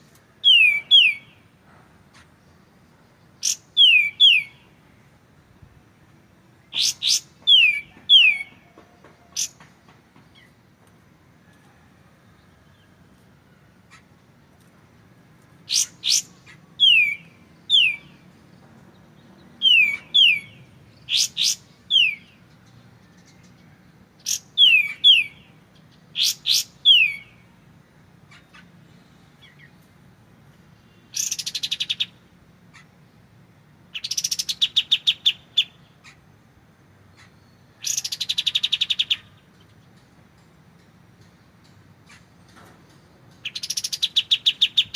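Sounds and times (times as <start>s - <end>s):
songbird chip notes and whistles: 0.4s - 1.4s, 3.4s - 4.7s, 6.7s - 9.6s, 15.7s - 18.2s, 19.6s - 25.6s, 26.2s - 27.5s.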